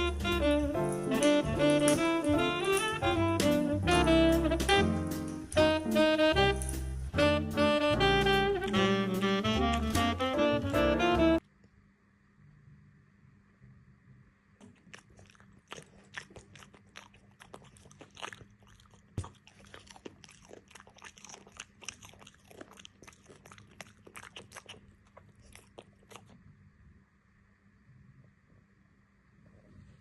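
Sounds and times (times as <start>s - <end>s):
person chewing crunchy food: 14.6s - 26.4s.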